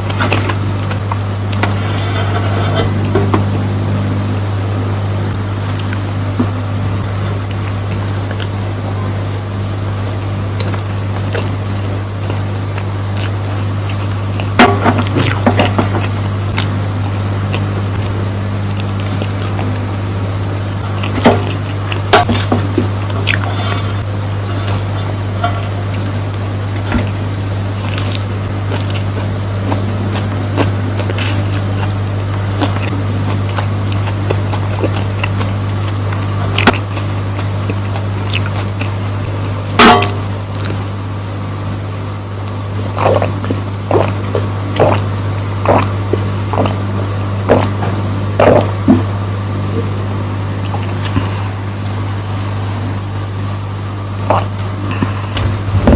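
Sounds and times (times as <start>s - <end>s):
low hum: 0.0s - 55.9s
spoon scraping a plate: 1.6s - 3.4s, 23.3s - 24.8s
wet chewing: 5.7s - 6.0s, 7.4s - 8.6s, 12.2s - 19.8s, 20.8s - 26.1s, 26.9s - 40.8s, 43.0s - 49.1s, 50.6s - 51.6s, 54.3s - 55.6s.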